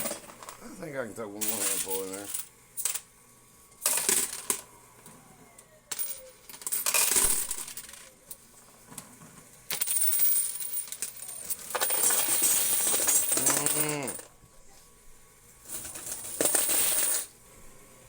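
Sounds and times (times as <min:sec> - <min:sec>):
coins clattering: 0:00.0 - 0:00.6, 0:01.4 - 0:03.1, 0:03.8 - 0:04.7, 0:05.9 - 0:08.4, 0:09.7 - 0:14.3, 0:15.6 - 0:17.3.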